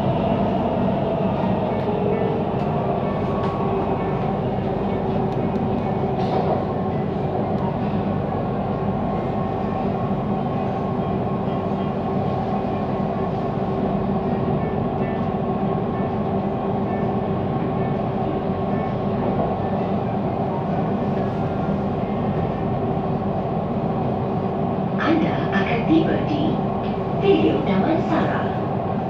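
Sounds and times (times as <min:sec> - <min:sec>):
train humming tones: 0:00.0 - 0:13.8.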